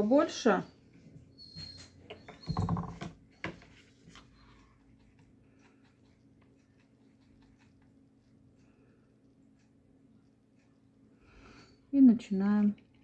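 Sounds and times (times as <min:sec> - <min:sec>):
paintbrush scratching and tapping: 0:02.5 - 0:10.9.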